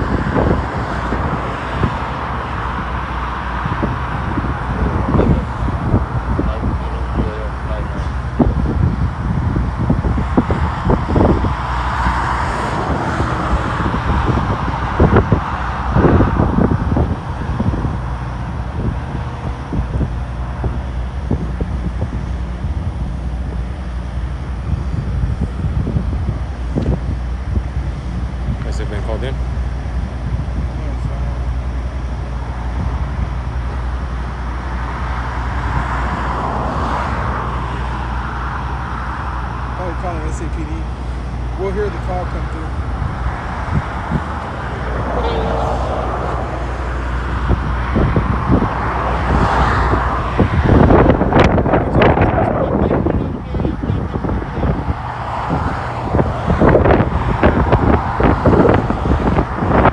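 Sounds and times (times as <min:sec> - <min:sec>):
vehicle passing: 0:00.0 - 0:19.4, 0:31.0 - 0:59.9
wind buffeting microphone: 0:00.0 - 0:59.9.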